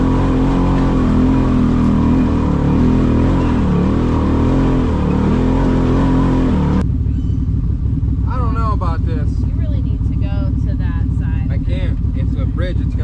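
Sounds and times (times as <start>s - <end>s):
low steady engine rumble: 0.0s - 13.0s
vehicle engine revving: 0.0s - 13.0s.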